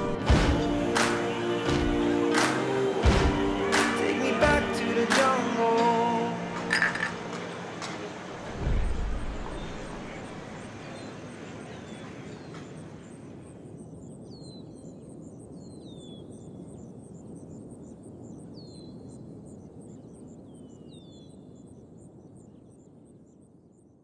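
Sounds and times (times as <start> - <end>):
bird chirping: 8.6 - 19.2.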